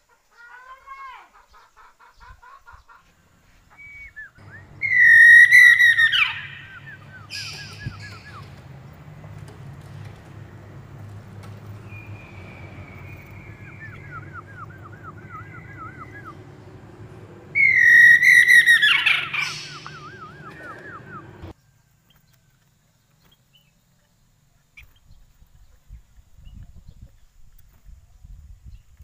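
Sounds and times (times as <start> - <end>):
long held bird whistles: 3.7 - 8.7, 11.7 - 16.5, 17.5 - 21.5
loud falling bird call: 3.7 - 21.5
bird singing whistled notes: 3.7 - 21.6.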